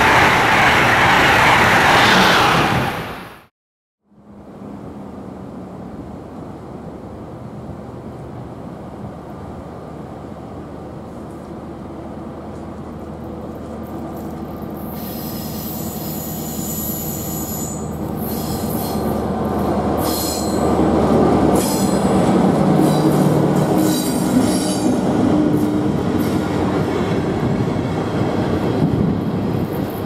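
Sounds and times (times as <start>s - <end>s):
diesel locomotive engine drone: 0.0s - 3.4s, 4.0s - 30.0s
high-pitched wheel flange squeal: 14.9s - 19.1s.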